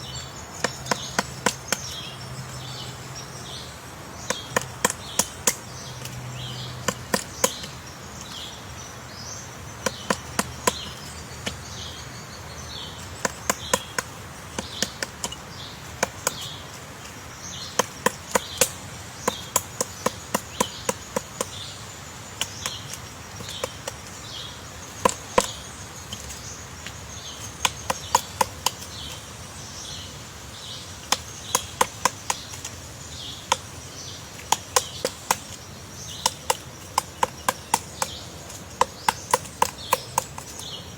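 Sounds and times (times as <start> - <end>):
woodpecker pecking wood: 0.0 - 40.9.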